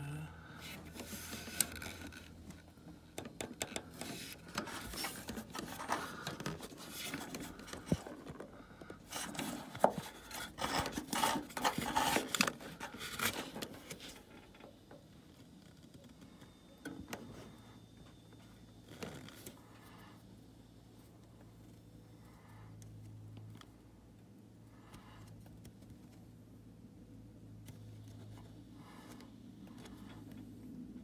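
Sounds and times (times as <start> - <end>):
objects knocking and scraping: 0.9 - 15.1.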